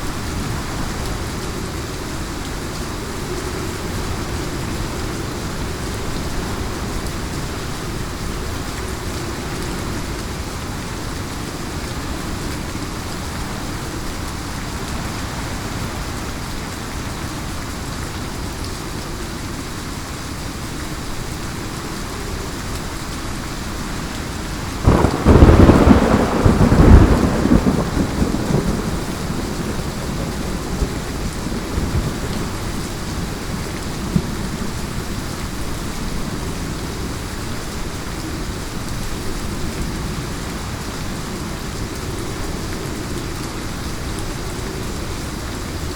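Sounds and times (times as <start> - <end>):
heavy rain falling: 0.0 - 45.9
thunderclap rumbling: 24.8 - 34.6.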